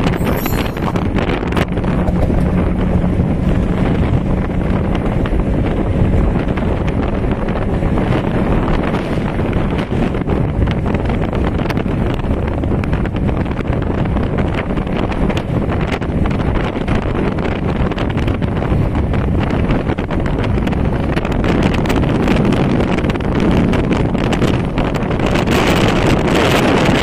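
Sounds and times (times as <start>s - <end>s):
wind buffeting microphone: 0.0s - 27.0s
outboard motors humming: 1.7s - 7.5s.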